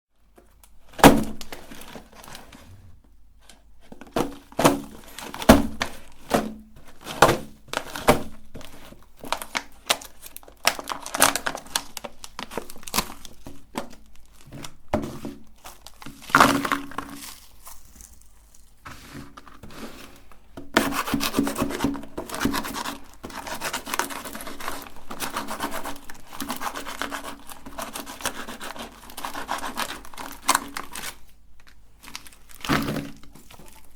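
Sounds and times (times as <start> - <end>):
meat grinder crushing candies: 7.8 - 14.0.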